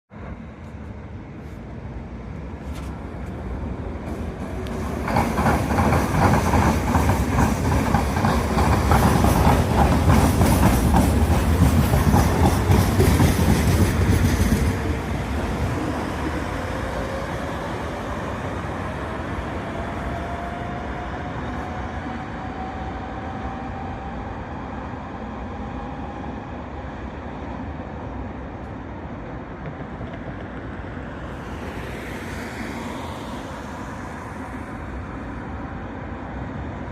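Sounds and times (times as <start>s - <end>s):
tram whine: 0.1s - 36.9s
tram wheels clattering on rails: 2.6s - 18.4s, 29.2s - 31.3s.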